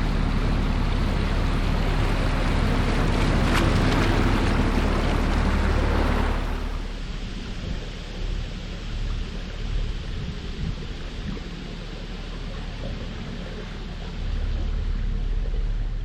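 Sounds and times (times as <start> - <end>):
wind buffeting microphone: 0.0 - 12.4
boat engine humming: 0.0 - 16.0.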